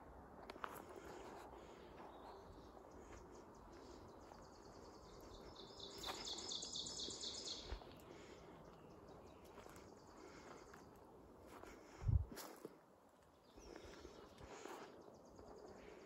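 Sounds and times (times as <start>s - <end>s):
faint outdoor background: 0.0s - 16.0s
songbird trill: 2.0s - 11.1s.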